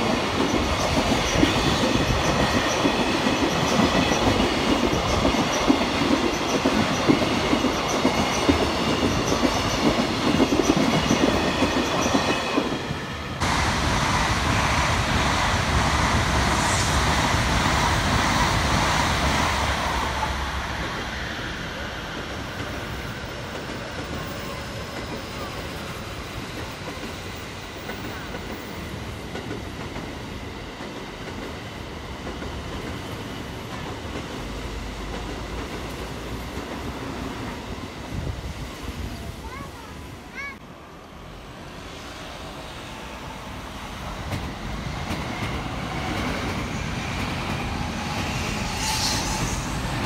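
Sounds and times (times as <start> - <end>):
freight train wheel clatter: 0.0 - 19.2
electric passenger train passing: 0.0 - 50.0.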